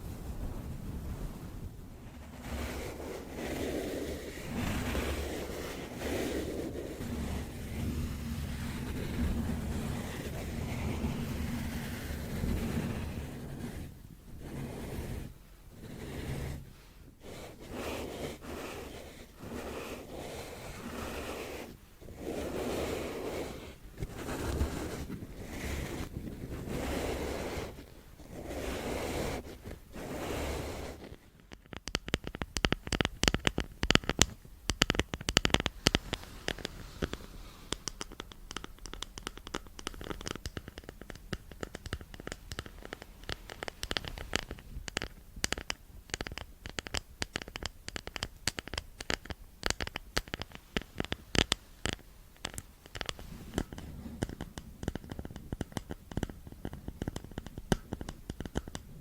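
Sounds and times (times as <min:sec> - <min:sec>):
soft whooshing: 0:00.0 - 0:31.0
close scratching and clicks: 0:00.0 - 0:59.0.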